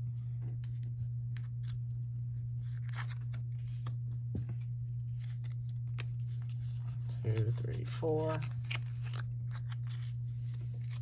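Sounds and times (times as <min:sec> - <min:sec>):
steady low hum: 0:00.0 - 0:11.0
cards sliding and flicking: 0:02.7 - 0:04.6, 0:07.3 - 0:11.0.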